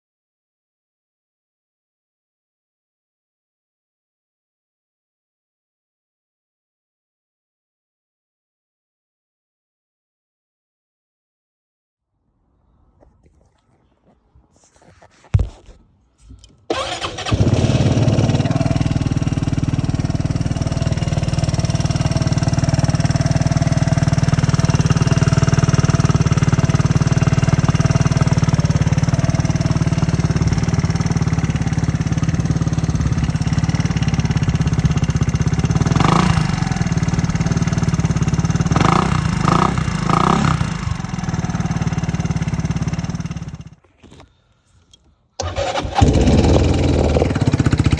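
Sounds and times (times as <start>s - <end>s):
click: 16.2s - 16.6s, 44.1s - 45.2s
scooter engine idling and revving: 16.7s - 43.8s, 45.4s - 47.9s.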